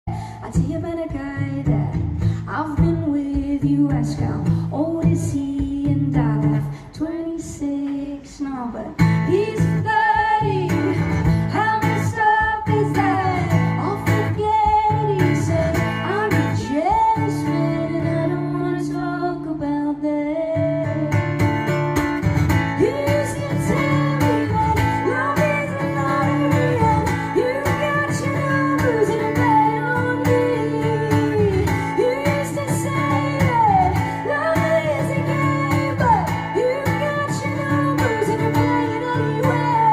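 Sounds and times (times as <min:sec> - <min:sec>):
woman singing: 0:00.0 - 0:39.9
strummed guitar: 0:08.9 - 0:39.9.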